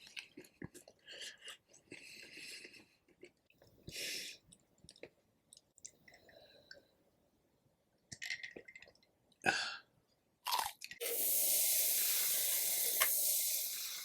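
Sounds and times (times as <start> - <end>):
steady hiss: 11.0 - 14.0.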